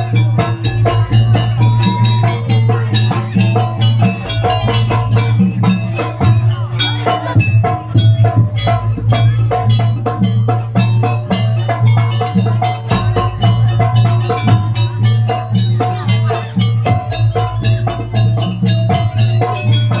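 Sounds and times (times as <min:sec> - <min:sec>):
fast drum strokes: 0:00.0 - 0:20.0
tuned metal percussion: 0:00.0 - 0:20.0.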